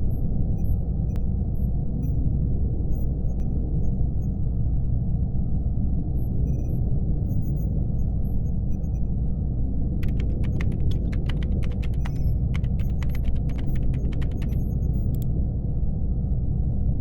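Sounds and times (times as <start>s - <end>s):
steady low hum: 0.0s - 17.0s
laptop keyboard typing: 10.0s - 15.2s.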